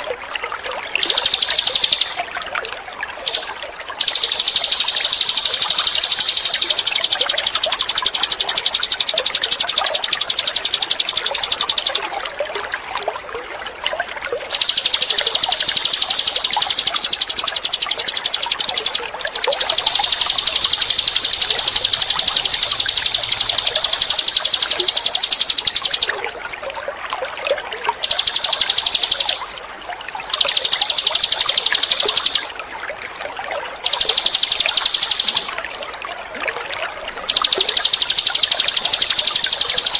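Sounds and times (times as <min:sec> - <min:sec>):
trickle of running water: 0:00.0 - 0:39.9
songbird buzzing trills: 0:01.0 - 0:02.3, 0:03.3 - 0:12.0, 0:14.5 - 0:26.2, 0:28.0 - 0:29.5, 0:30.3 - 0:32.6, 0:33.8 - 0:35.6, 0:37.2 - 0:39.9.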